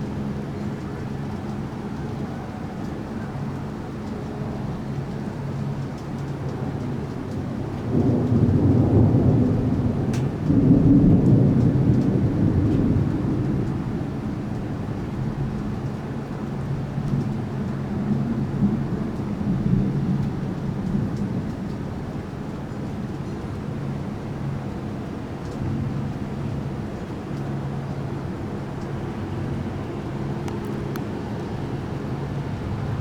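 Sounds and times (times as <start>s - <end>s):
steady rain: 0.0s - 33.0s
thunder rumbling: 7.5s - 22.4s, 28.1s - 33.0s.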